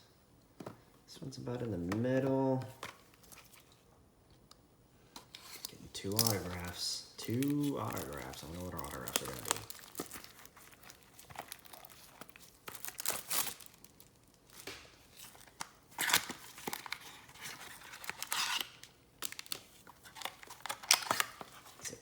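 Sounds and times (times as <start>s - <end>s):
wrapper tearing and crinkling: 6.0s - 21.8s.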